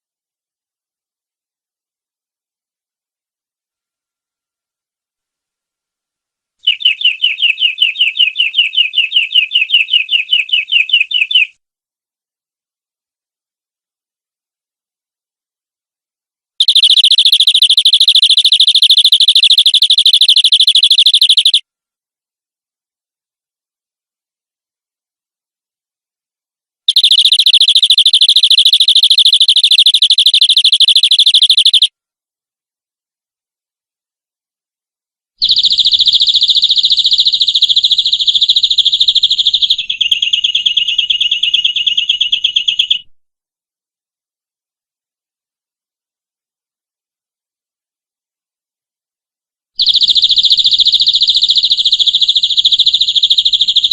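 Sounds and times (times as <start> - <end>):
canary trilling: 6.6 - 11.5, 16.6 - 21.6, 26.9 - 31.9, 35.4 - 43.1, 49.8 - 53.9.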